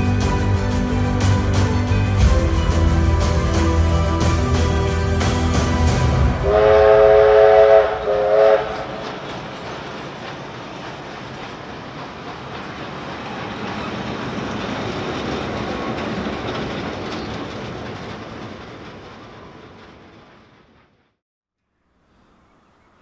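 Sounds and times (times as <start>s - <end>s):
train wheels clattering over rail joints: 8.6s - 21.1s.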